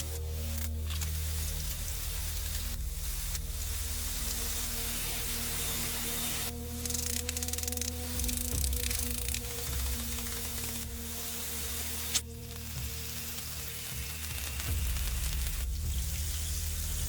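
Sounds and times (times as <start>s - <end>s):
faint low music: 0.0s - 17.0s
food sizzling on a grill: 11.3s - 17.0s.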